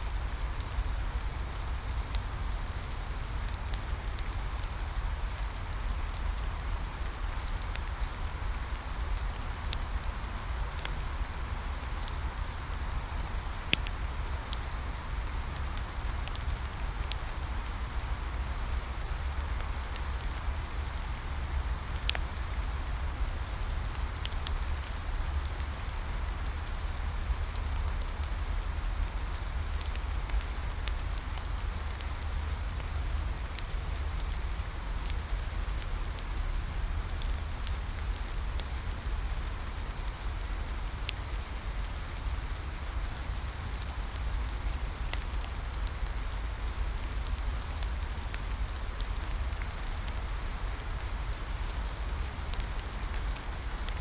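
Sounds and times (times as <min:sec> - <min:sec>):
steady rain: 0:00.0 - 0:54.0
wood fire crackling: 0:00.1 - 0:54.0.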